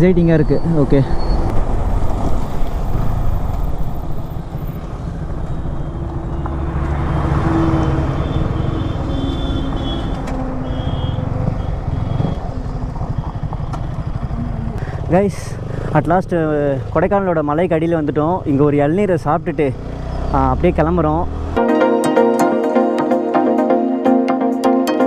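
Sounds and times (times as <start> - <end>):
wind and road rush: 0.0 - 21.6
motorcycle engine: 1.3 - 16.8.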